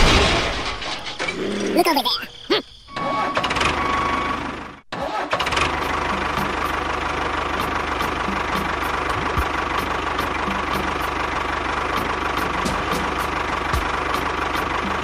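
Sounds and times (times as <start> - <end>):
tractor engine idling: 4.4 - 15.0.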